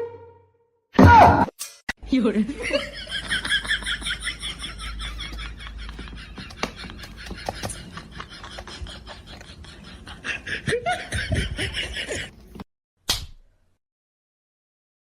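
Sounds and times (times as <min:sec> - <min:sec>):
people laughing: 0:02.4 - 0:12.3.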